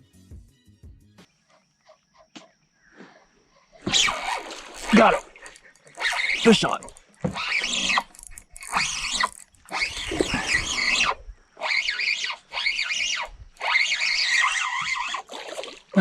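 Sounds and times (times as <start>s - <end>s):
fishing reel whining: 3.9s - 11.2s.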